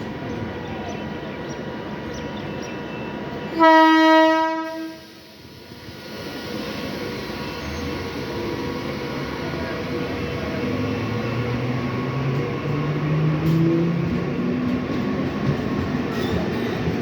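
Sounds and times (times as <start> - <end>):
train rumbling: 0.0 - 17.0
train horn blast: 3.6 - 5.1.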